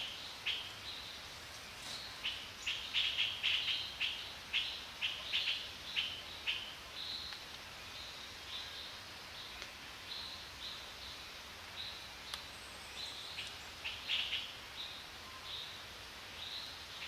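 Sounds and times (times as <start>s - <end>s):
forest background noise: 0.0s - 17.0s
faint clicks: 7.3s - 7.7s, 9.6s - 9.8s, 12.3s - 12.5s.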